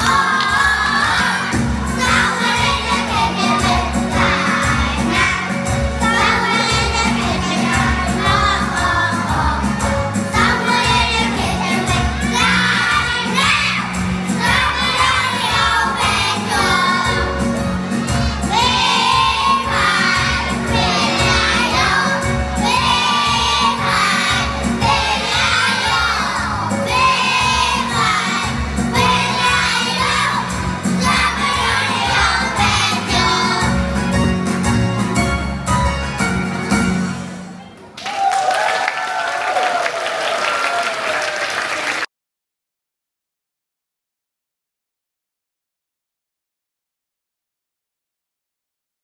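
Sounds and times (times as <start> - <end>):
children singing loudly: 0.0 - 34.0.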